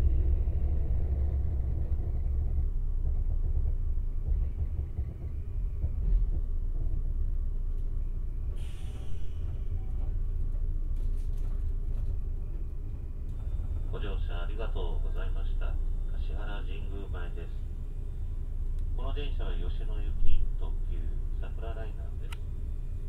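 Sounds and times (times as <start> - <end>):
train rumble: 0.0 - 23.0
short hiss: 8.6 - 9.5.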